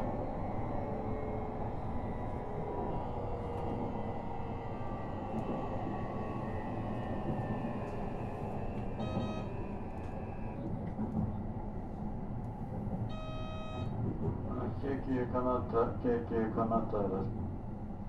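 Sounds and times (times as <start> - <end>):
train motor whine: 7.2 - 10.6.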